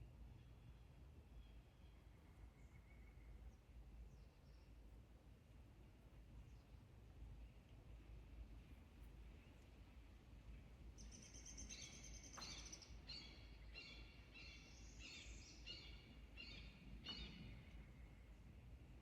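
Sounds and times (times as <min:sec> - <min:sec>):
low steady rumble: 0:00.0 - 0:19.0
bird singing: 0:11.0 - 0:18.4.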